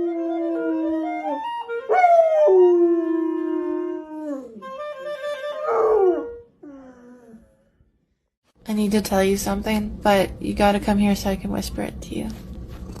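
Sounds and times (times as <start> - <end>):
dog howling: 5.6 - 7.4.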